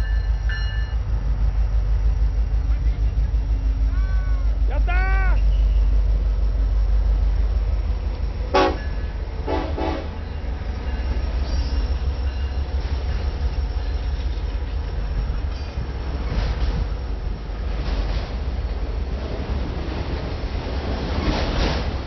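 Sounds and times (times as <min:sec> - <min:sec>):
freight train rumbling: 0:00.0 - 0:22.0
train horn toots: 0:08.5 - 0:10.2.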